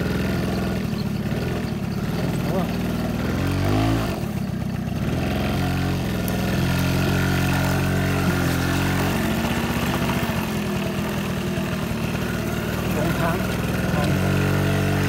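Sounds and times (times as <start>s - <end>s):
small vehicle engine running: 0.0s - 15.0s.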